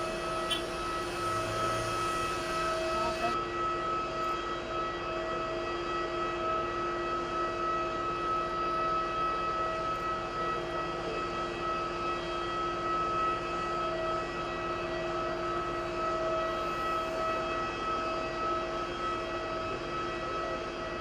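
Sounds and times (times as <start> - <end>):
aircraft engines high whine: 0.0 - 21.0.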